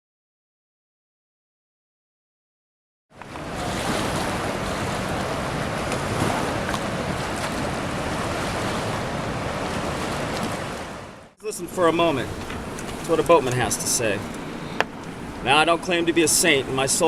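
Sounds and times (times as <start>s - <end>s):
wind buffeting microphone: 3.2s - 16.8s
river rushing: 3.2s - 17.0s.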